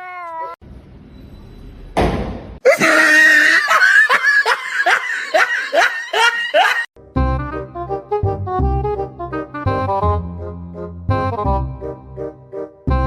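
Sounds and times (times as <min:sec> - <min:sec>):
person laughing in shrieking bursts: 0:02.6 - 0:06.9
music: 0:07.0 - 0:13.0.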